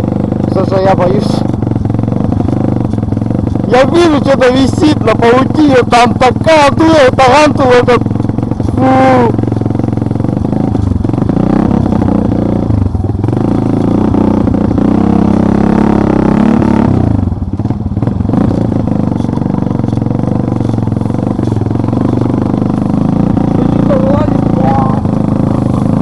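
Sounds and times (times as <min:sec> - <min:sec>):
off-road vehicle engine revving: 0:00.0 - 0:26.0
rattling: 0:00.4 - 0:16.0, 0:16.6 - 0:26.0.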